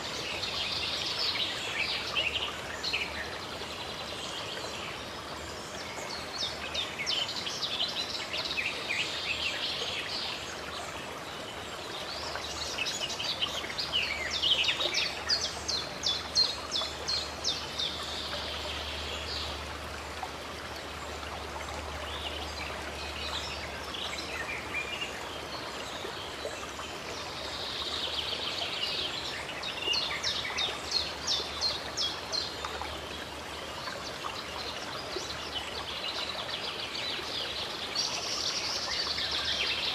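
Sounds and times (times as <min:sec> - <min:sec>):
songbirds singing: 0:00.0 - 0:39.9
stream water flowing: 0:00.0 - 0:39.9.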